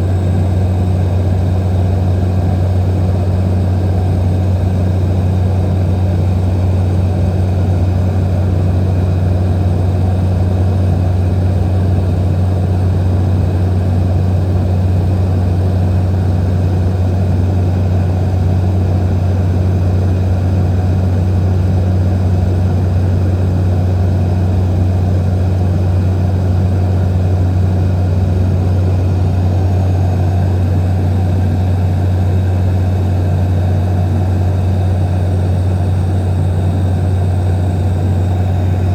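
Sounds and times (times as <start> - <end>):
propeller airplane engine humming: 0.0 - 38.9.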